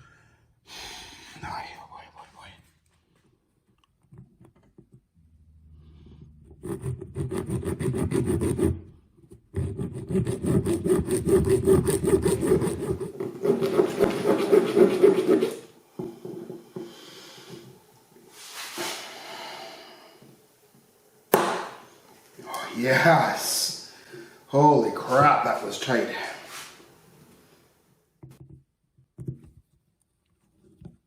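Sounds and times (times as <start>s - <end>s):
hand tool rasping and scraping: 6.0s - 8.9s, 9.5s - 16.5s.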